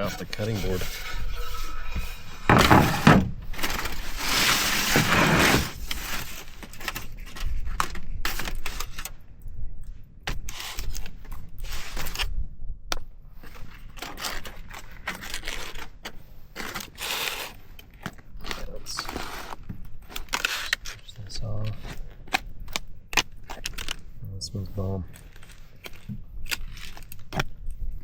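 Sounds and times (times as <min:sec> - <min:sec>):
fork clinking and scraping on board: 0:00.0 - 0:03.2.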